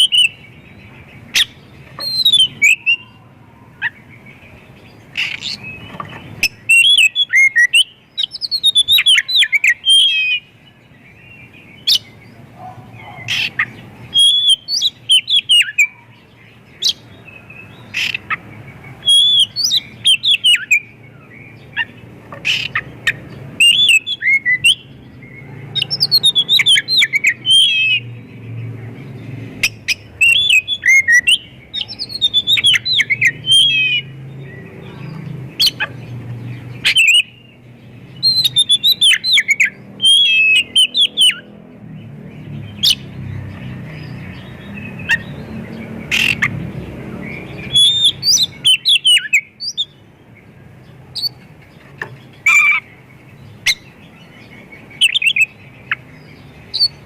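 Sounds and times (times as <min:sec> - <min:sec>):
bird singing whistled phrases: 0:00.0 - 0:00.4, 0:01.4 - 0:03.2, 0:06.4 - 0:10.5, 0:14.1 - 0:16.1, 0:19.0 - 0:20.9, 0:23.6 - 0:24.9, 0:25.8 - 0:28.1, 0:29.6 - 0:34.2, 0:38.2 - 0:41.4, 0:47.3 - 0:50.0, 0:55.0 - 0:56.0.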